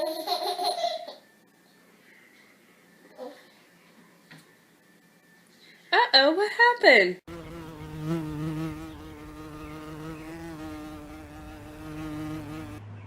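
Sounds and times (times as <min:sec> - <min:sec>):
steady buzz: 0:07.3 - 0:12.8.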